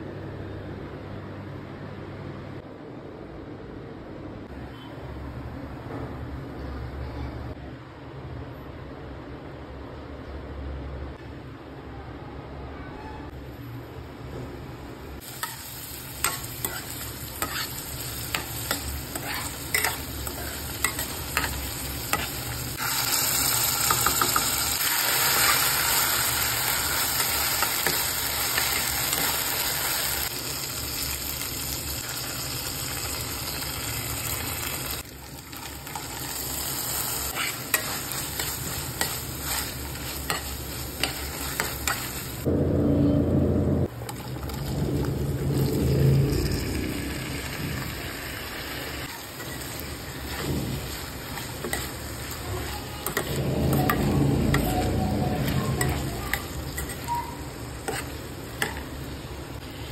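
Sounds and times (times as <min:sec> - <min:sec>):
onions sizzling in hot oil: 0:15.2 - 0:42.5, 0:44.0 - 0:59.9
spatula scraping a pan: 0:16.3 - 0:22.6, 0:37.0 - 0:42.2, 0:49.4 - 0:58.8
low muffled rumble: 0:42.4 - 0:48.4, 0:52.6 - 0:56.8.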